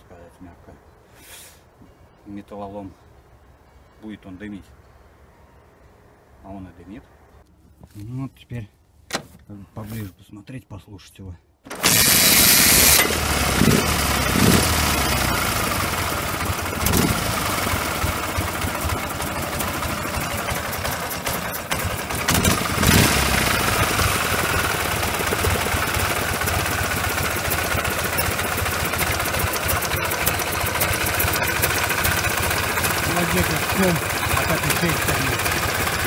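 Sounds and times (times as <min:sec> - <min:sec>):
motorcycle engine running: 0:11.8 - 0:36.0.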